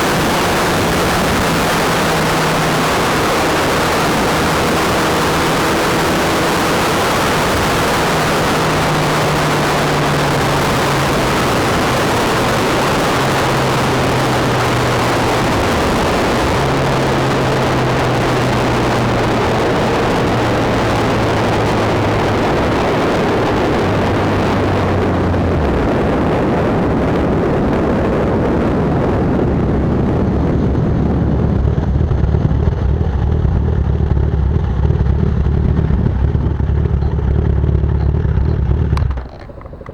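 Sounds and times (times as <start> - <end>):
motorcycle engine: 0.0 - 39.9
wind rushing over microphone: 0.0 - 39.9.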